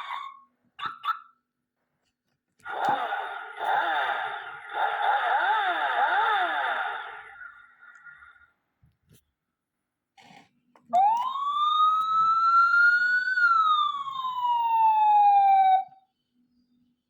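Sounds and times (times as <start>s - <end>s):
toy siren wailing: 4.8s - 7.0s, 11.0s - 16.0s.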